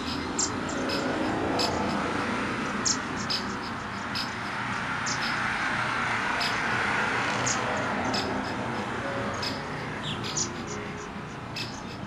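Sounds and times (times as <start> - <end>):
high bird chirps: 0.0 - 2.0, 2.8 - 5.5, 7.4 - 12.0.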